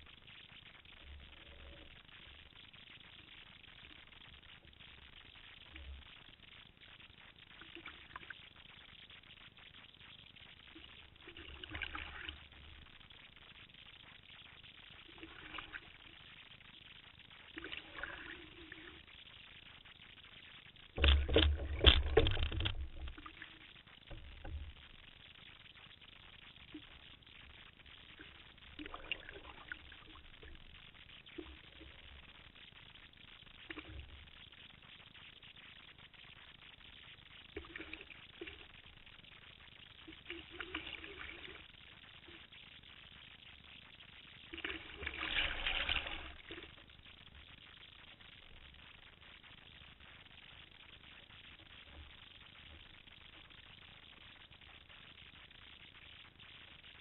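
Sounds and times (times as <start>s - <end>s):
water splashes and dribbles: 0.0s - 55.8s
faint steady hiss: 0.0s - 57.0s
water splashing and lapping: 10.8s - 13.0s, 17.5s - 19.1s, 21.0s - 24.8s, 28.0s - 32.2s, 40.0s - 42.5s, 44.4s - 46.9s.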